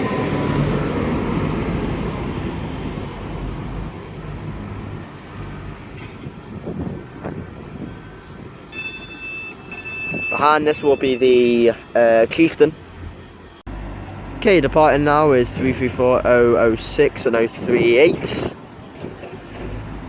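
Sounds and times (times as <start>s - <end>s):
steady high tone: 0.0s - 4.0s, 8.7s - 12.6s
electric train rumbling: 0.0s - 20.0s.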